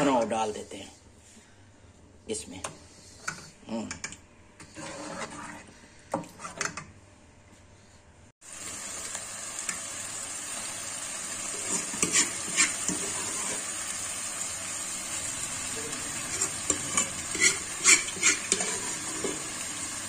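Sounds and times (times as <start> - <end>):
food sizzling in a pot: 8.4 - 20.0.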